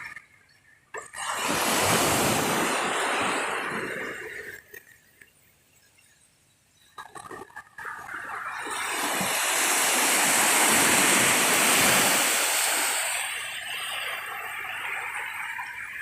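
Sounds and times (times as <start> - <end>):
sea waves breaking: 1.0 - 5.0, 7.1 - 16.0.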